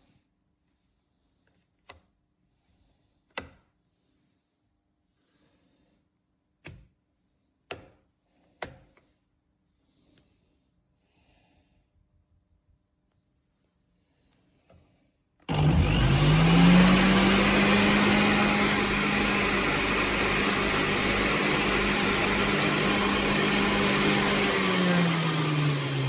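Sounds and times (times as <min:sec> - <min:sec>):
juice extractor motor whirring: 0:15.5 - 0:26.0.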